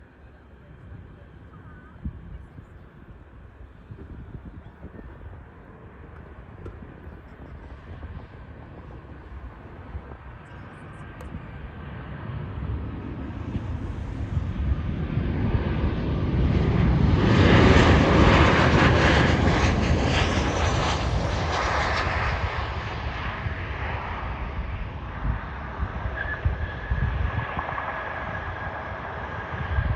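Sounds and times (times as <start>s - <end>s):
jet airliner engines rumbling: 0.0s - 29.9s.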